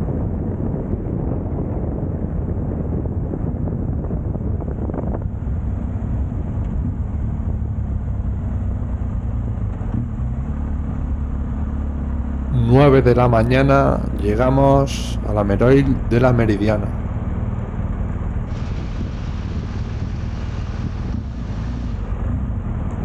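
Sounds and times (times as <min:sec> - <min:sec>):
wind rushing over microphone: 0:00.0 - 0:07.2, 0:18.5 - 0:22.8.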